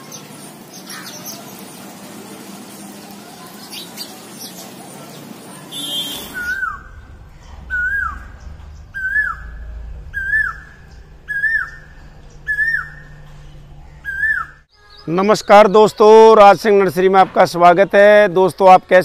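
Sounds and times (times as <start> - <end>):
sparrows chirping: 0.0 - 16.3
bird whistling downward notes: 5.7 - 7.1, 7.7 - 13.2, 14.0 - 14.7.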